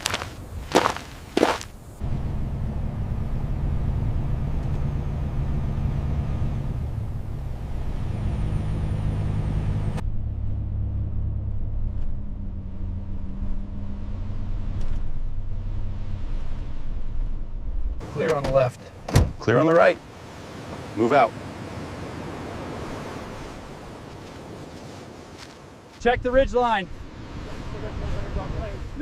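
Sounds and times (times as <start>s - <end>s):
heavy vehicle engine rumble: 1.9s - 19.5s.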